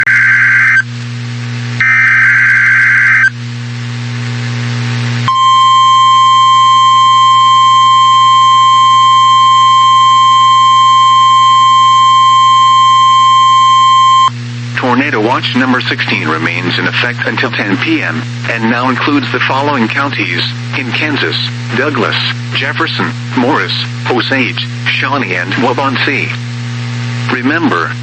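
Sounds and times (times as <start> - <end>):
steady warning alarm tone: 0.0 - 0.8, 1.8 - 3.3, 5.3 - 14.3
low hum: 0.0 - 18.5
radio hiss: 13.9 - 26.4, 27.0 - 28.0.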